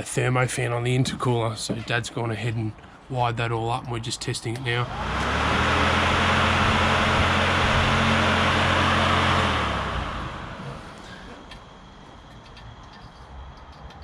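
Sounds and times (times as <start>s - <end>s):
electric fan rushing air: 4.5s - 11.2s.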